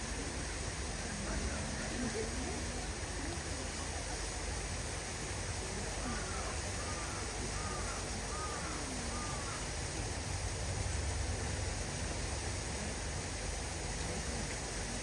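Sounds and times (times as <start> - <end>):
bird calling: 6.0 - 9.7.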